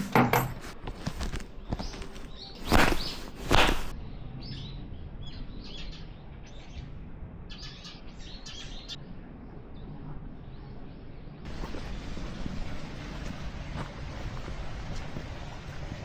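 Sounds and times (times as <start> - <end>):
small birds chirping: 0.8 - 16.0
low steady rumble: 9.0 - 16.0.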